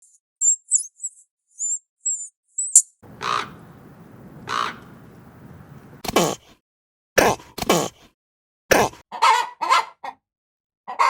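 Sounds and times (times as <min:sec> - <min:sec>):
high bird chirps: 0:00.0 - 0:06.0
longer lower bird calls: 0:00.4 - 0:06.0
faint steady hiss: 0:03.0 - 0:06.0.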